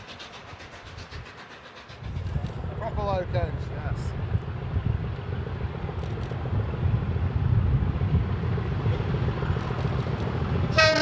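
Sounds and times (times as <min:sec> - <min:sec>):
train rumbling: 0:00.0 - 0:11.0
locomotive whistle: 0:10.7 - 0:11.0.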